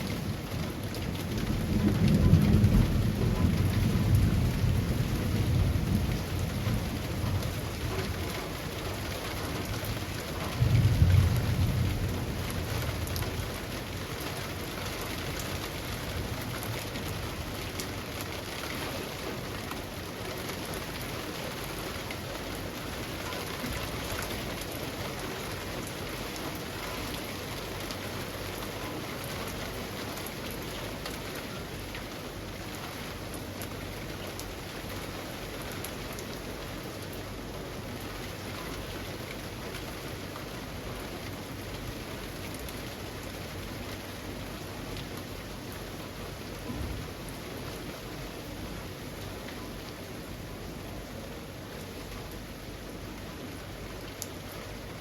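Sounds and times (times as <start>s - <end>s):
low thunder rumbling: 0.0s - 17.7s, 46.7s - 47.3s
rain falling on leafy trees: 0.0s - 55.0s.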